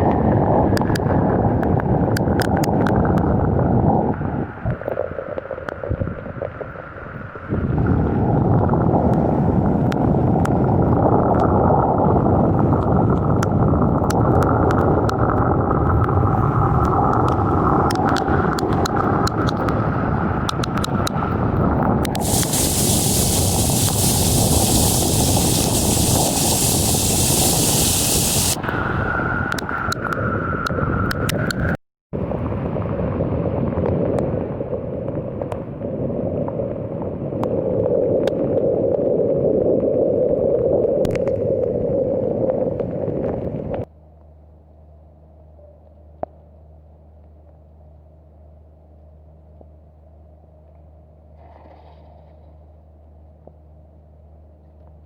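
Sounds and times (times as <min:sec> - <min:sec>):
wind buffeting microphone: 0:00.0 - 0:43.9
sharp ticks: 0:22.1 - 0:28.6
heavy rain hissing: 0:22.2 - 0:28.6.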